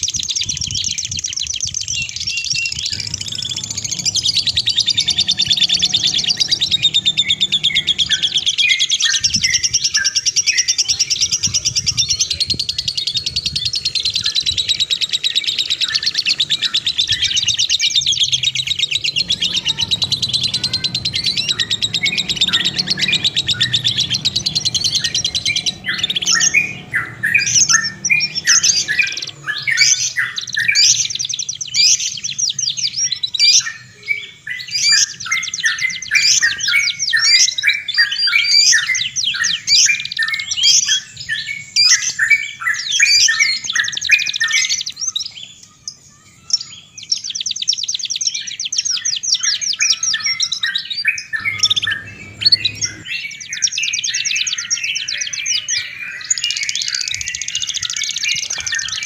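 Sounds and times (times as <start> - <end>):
songbirds trilling and chirping: 0.0 - 59.0.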